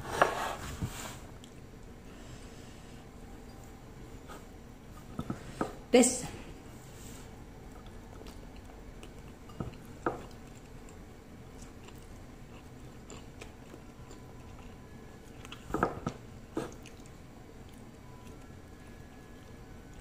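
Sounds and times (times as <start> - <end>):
low room hum: 0.0 - 20.0
person chewing: 7.6 - 20.0.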